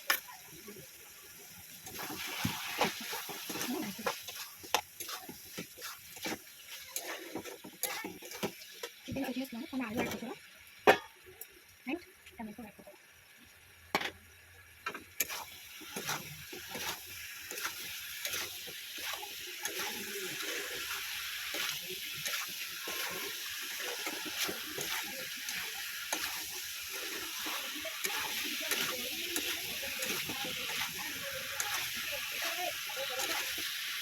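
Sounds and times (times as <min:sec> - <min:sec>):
food sizzling in a pan: 0:00.0 - 0:34.0
spoon scraping a pan: 0:01.9 - 0:09.3, 0:15.2 - 0:34.0.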